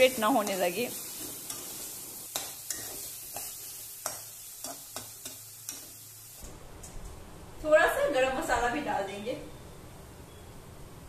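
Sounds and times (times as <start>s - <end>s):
paste sizzling in oil: 0.0s - 6.4s.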